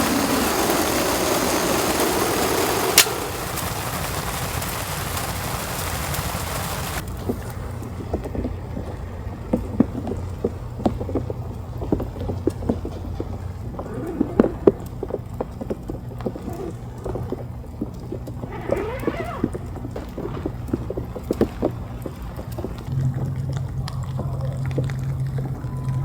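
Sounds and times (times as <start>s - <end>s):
rain tapping on tent fabric: 0.0s - 26.0s
steady low rumble: 22.7s - 26.0s.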